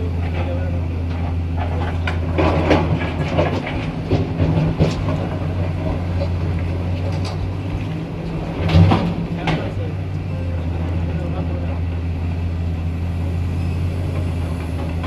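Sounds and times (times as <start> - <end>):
diesel engine droning: 0.0 - 15.0
rock clanking against steel: 0.1 - 10.2.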